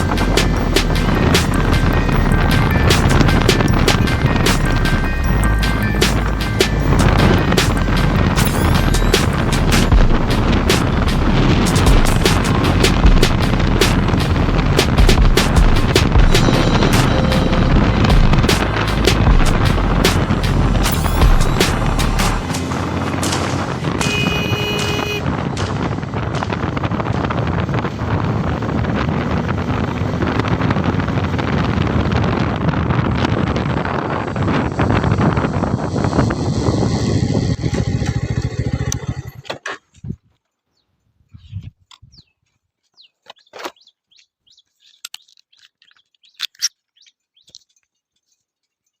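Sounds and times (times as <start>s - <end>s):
wind rushing over microphone: 0.0s - 39.4s
motorcycle engine: 0.0s - 39.6s
road noise: 0.0s - 39.7s
birds chirping: 16.4s - 26.0s, 40.6s - 48.2s.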